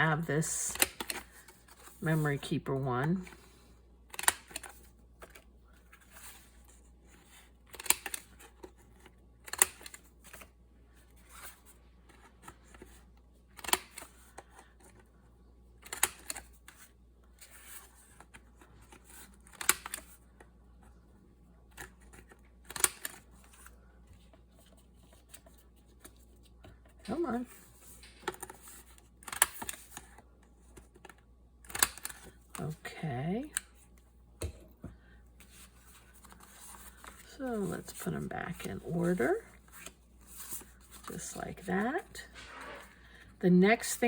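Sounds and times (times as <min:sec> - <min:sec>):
paper handling: 0:35.4 - 0:43.2.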